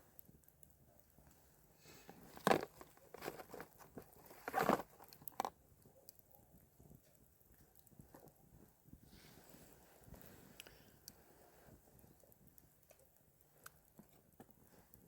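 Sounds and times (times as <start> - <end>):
crunches: 1.9 - 5.6.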